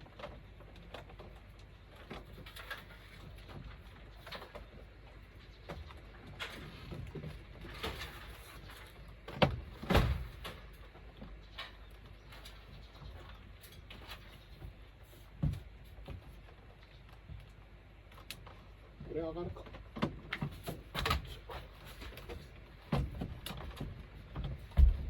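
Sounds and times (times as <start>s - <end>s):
knocks and clunks of installation: 19.5s - 25.0s.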